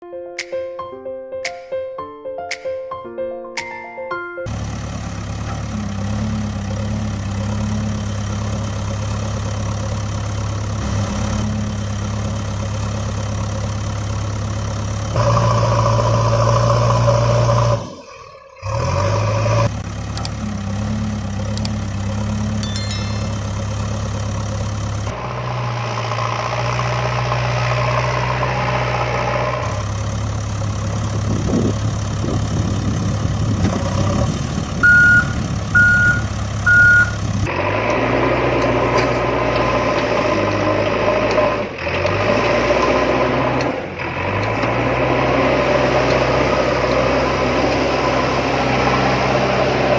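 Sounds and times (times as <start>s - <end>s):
engine idling: 4.5s - 16.7s, 19.7s - 25.8s, 29.0s - 33.6s.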